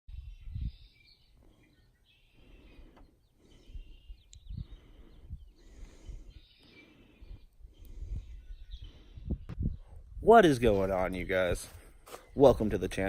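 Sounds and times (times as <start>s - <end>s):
birds chirping: 0.1s - 13.0s.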